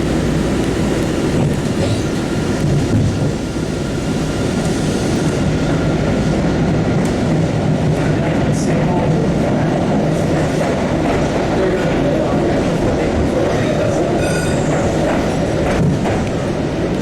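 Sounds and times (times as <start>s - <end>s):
subway train rumbling on rails: 0.0s - 17.0s
clicking over rails: 0.1s - 3.6s, 4.4s - 17.0s.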